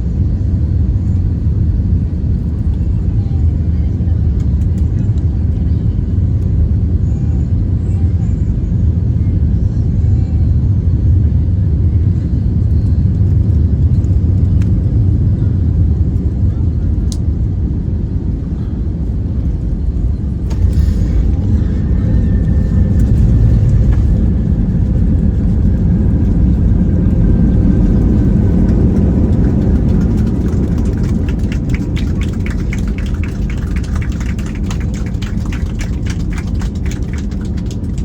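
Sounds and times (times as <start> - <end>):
airliner engine and runway rumble: 0.0 - 38.0
faint whine falling in pitch: 19.2 - 34.1
rapid regular clicks or rattles: 28.1 - 38.0.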